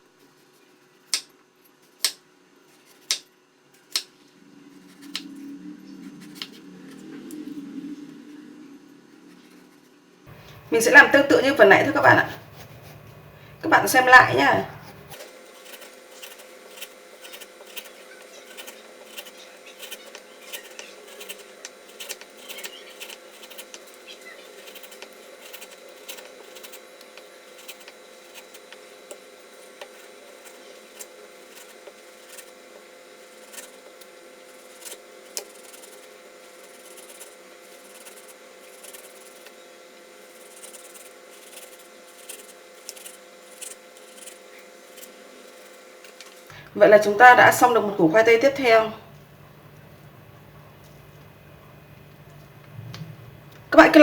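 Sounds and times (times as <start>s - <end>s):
faint steady hum: 3.6s - 54.0s
knife cutting raw potato: 4.8s - 5.4s, 13.8s - 46.5s.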